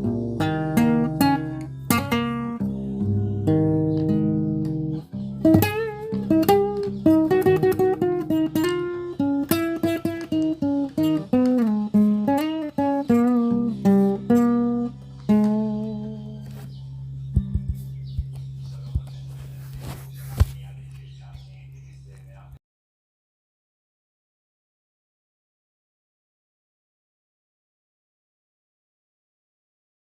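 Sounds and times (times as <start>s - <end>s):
solo guitar playing: 0.0s - 19.7s.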